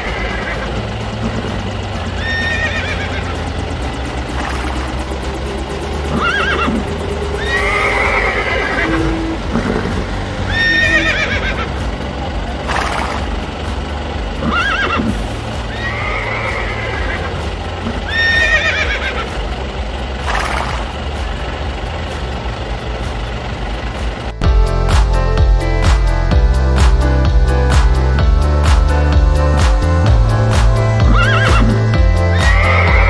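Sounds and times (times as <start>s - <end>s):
steady low hum: 0.0s - 32.3s
horse whinnying: 2.2s - 3.2s, 6.1s - 6.8s, 7.4s - 11.7s, 14.4s - 17.3s, 18.1s - 19.2s, 31.0s - 33.0s.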